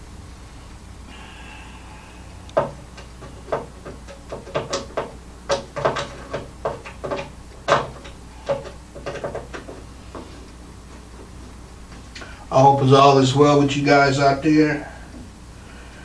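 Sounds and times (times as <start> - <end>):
hard objects knocking and clattering: 2.6 - 12.0.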